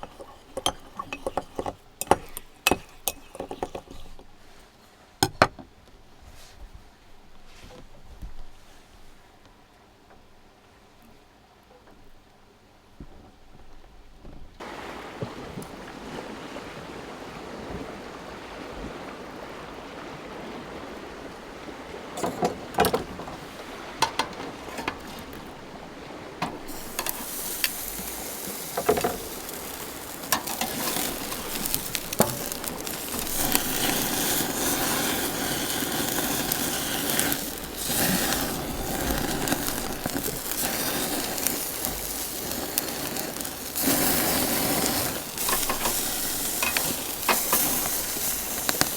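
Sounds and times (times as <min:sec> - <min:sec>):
food sizzling on a grill: 0:00.0 - 0:04.1, 0:26.6 - 0:48.9
cooking utensils clicking: 0:00.0 - 0:04.2, 0:26.7 - 0:42.0, 0:44.7 - 0:48.9.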